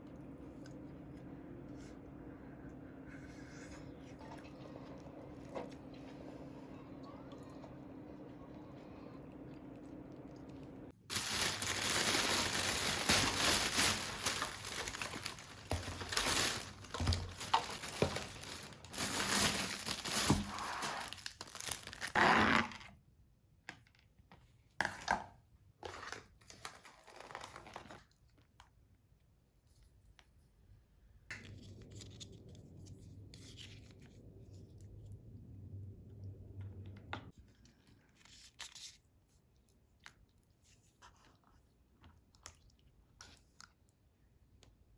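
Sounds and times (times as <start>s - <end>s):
low steady hum: 0.0s - 21.8s, 31.3s - 37.7s
small handling noises: 9.8s - 22.0s
packaging tearing and crinkling: 11.1s - 22.8s, 26.6s - 28.2s.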